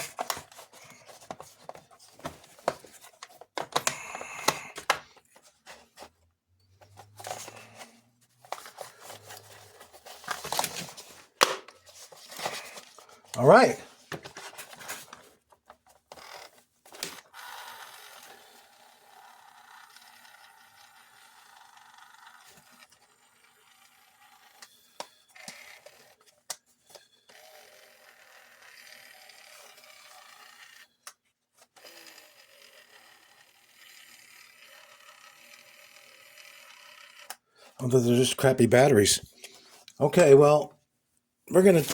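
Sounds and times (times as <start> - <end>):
toy motor and gears whirring: 16.0 - 37.6.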